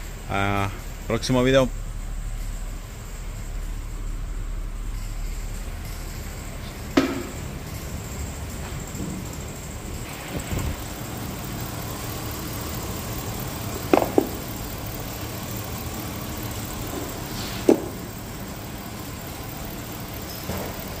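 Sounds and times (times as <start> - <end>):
car engine idling: 0.0 - 21.0
sharp knocks: 6.8 - 7.5, 13.9 - 14.4.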